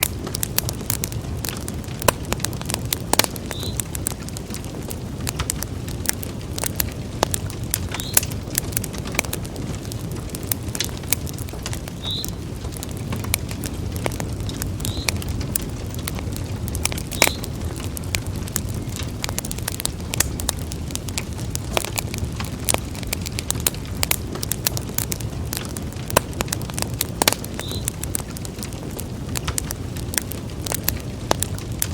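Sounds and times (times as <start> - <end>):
fire low rumble: 0.0 - 31.9
fireplace fire crackling and popping: 0.0 - 31.9.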